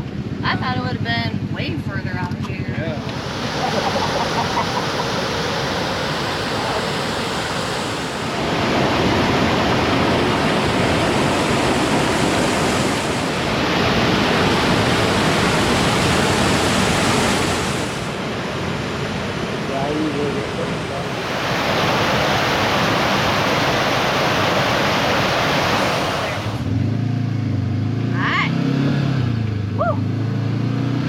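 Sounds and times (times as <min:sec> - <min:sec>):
waterfall rushing: 0:03.0 - 0:26.7.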